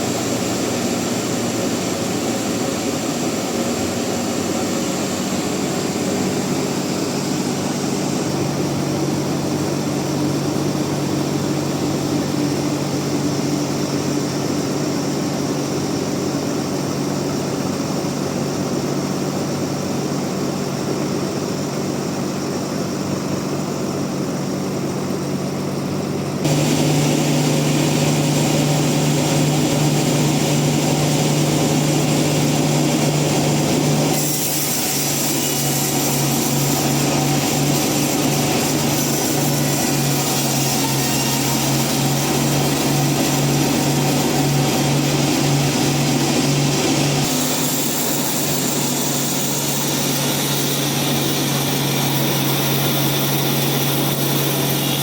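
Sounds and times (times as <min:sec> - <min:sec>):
bandsaw droning: 0:26.4 - 0:55.0.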